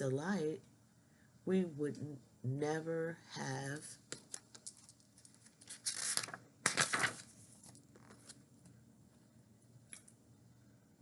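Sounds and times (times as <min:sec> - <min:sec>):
book page turning: 0:04.1 - 0:08.4.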